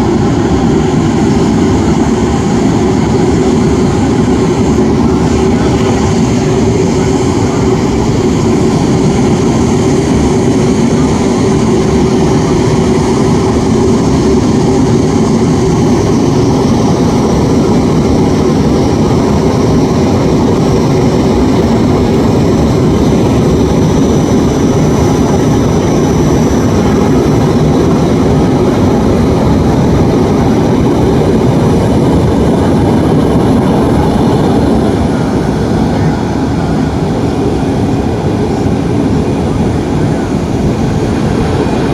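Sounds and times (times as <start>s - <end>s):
jet engines in flight: 0.0s - 41.9s
faint high whine: 2.1s - 31.6s.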